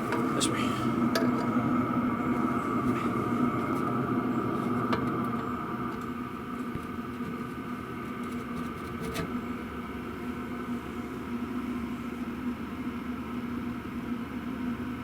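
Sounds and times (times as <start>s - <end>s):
diesel heater humming: 0.0s - 15.0s.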